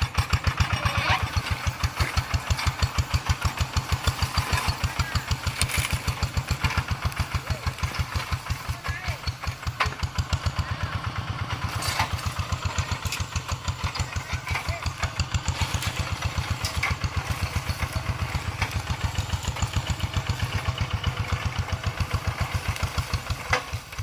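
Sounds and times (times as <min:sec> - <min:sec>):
diesel engine chugging: 0:00.0 - 0:24.0.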